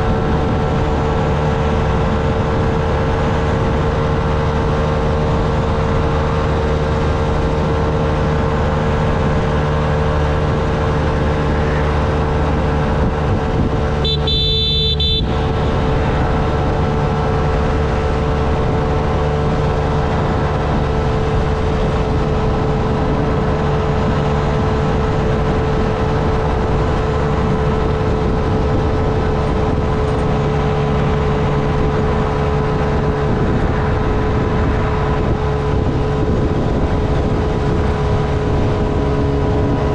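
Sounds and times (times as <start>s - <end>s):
small motorcycle engine running: 0.0s - 39.9s
wind and road noise: 0.0s - 39.9s
vehicle horn: 14.0s - 15.8s.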